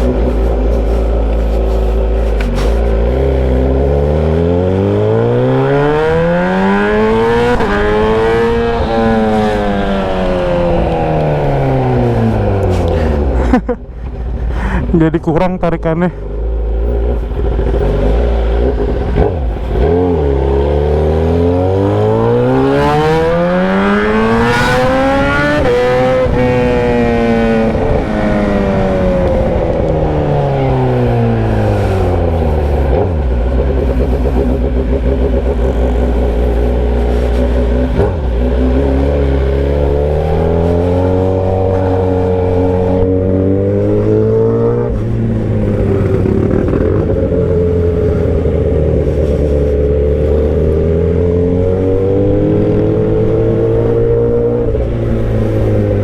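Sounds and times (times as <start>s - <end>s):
unmuffled motorcycle engine revving: 0.0s - 14.8s, 16.2s - 56.0s.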